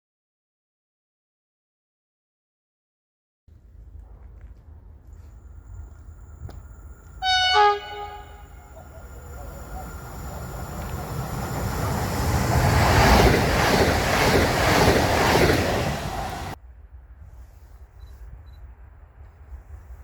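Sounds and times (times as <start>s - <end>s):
passing train rumble: 3.5s - 20.0s
train horn blast: 7.2s - 9.1s.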